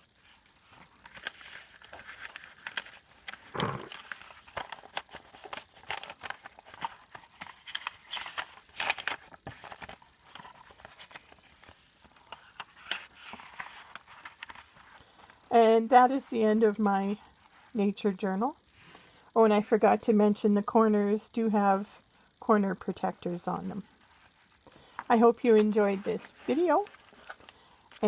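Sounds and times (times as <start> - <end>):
paper rustling: 0.0 - 15.4, 24.0 - 28.0.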